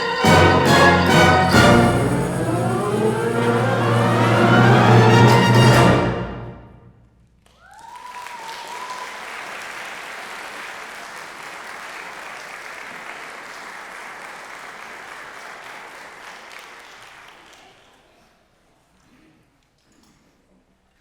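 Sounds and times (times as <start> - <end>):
audience applauding: 7.4 - 18.1
audience cheering: 7.6 - 10.0.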